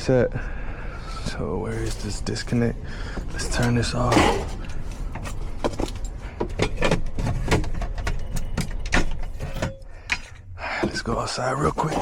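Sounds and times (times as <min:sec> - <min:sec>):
metal parts clicking and rattling: 0:03.5 - 0:10.4.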